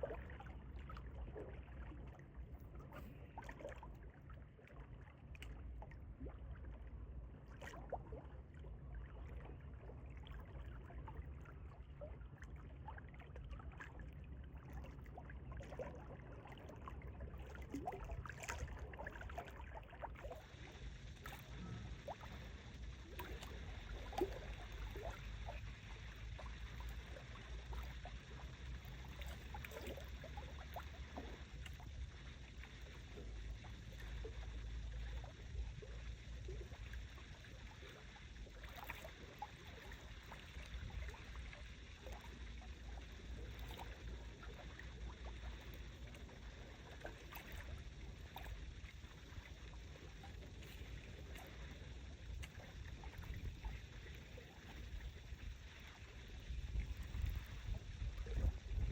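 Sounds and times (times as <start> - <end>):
small waves lapping at shore: 14.6 - 31.9, 32.5 - 58.9
wind rumbling on microphone: 53.0 - 58.9.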